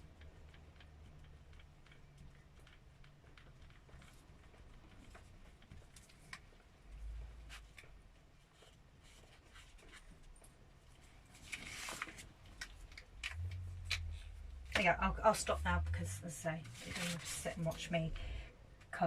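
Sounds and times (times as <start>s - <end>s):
paper rubbing: 16.6s - 17.9s.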